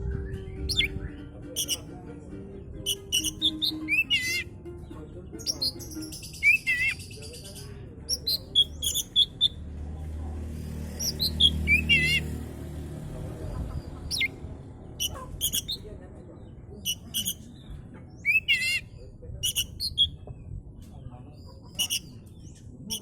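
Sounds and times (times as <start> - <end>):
low rumble: 0.0 - 1.2
bird singing whistled notes: 0.0 - 1.9, 2.8 - 4.5, 5.4 - 7.5, 8.1 - 9.6, 11.0 - 12.3, 18.2 - 18.8.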